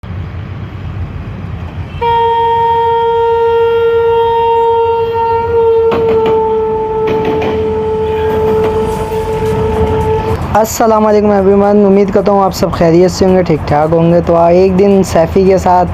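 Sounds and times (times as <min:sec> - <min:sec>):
train rumbling on track: 0:00.0 - 0:15.9
locomotive air horn blast: 0:01.9 - 0:10.8
wheel-on-rail knocks: 0:05.9 - 0:08.9.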